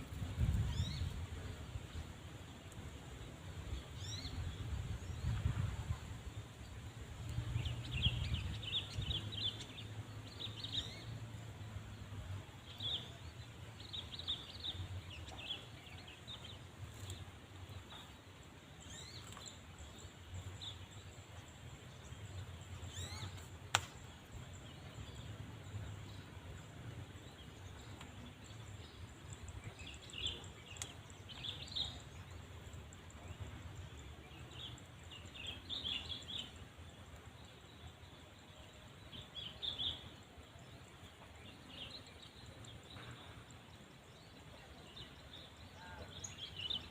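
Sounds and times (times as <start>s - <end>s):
small birds twittering: 0.0s - 46.9s
sharp click: 23.3s - 24.0s.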